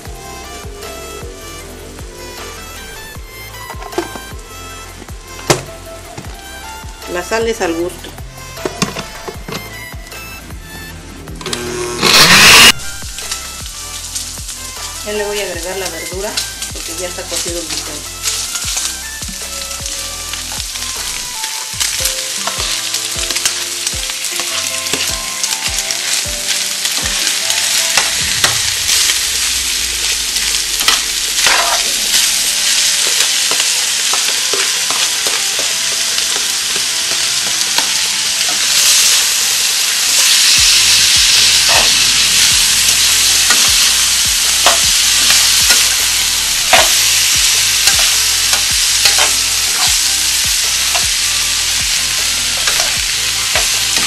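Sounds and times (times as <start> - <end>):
food sizzling in a frying pan: 11.4 - 54.0.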